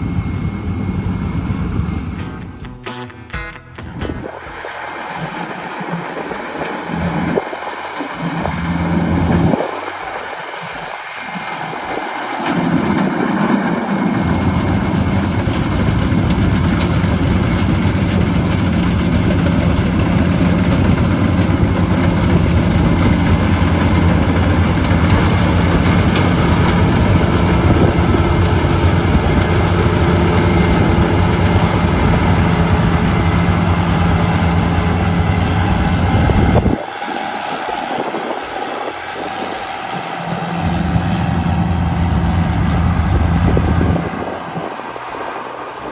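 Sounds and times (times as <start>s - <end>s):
combine harvester droning: 0.0s - 45.9s.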